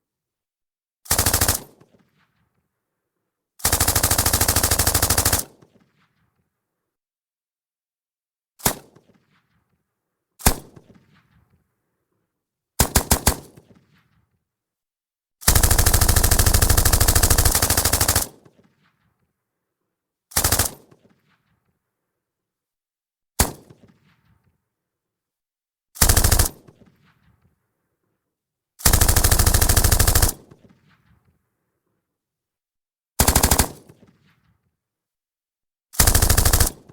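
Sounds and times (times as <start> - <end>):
machine gun firing bursts: 1.1 - 1.8, 3.6 - 5.6, 12.8 - 13.6, 15.4 - 18.4, 20.4 - 20.9, 26.0 - 26.8, 28.8 - 30.6, 33.2 - 34.0, 36.0 - 36.9.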